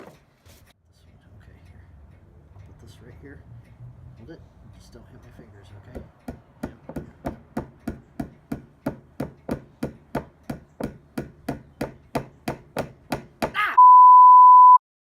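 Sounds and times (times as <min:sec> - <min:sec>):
hammer tapping nail into wood: 0:05.9 - 0:13.6.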